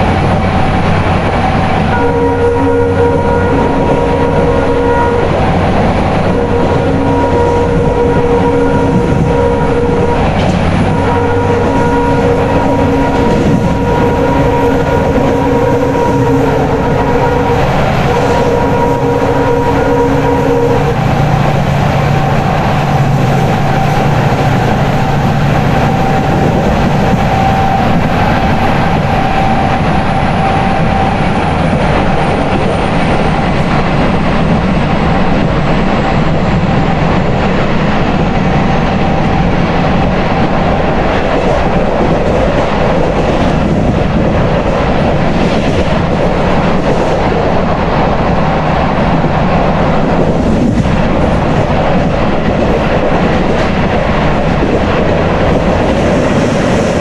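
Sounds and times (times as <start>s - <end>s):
train wheels rushing on rail: 0.0s - 57.0s
clickety-clack of coaches: 7.0s - 15.8s, 20.6s - 57.0s.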